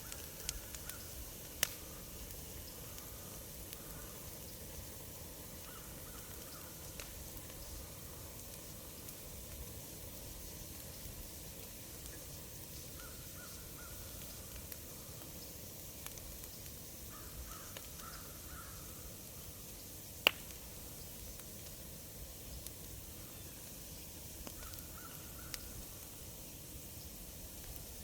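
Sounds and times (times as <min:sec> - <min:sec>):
wood fire crackling: 0:00.0 - 0:28.0
crows cawing: 0:17.1 - 0:18.8, 0:24.6 - 0:25.6.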